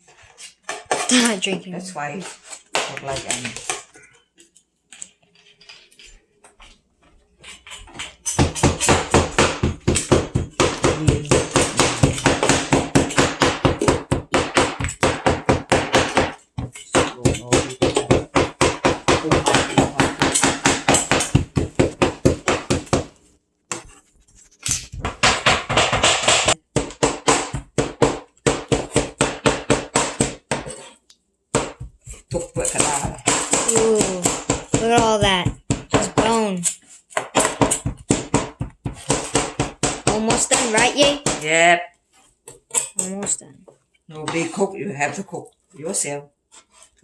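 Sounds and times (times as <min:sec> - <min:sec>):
knife chopping through bone: 0:08.4 - 0:23.1, 0:31.6 - 0:36.5.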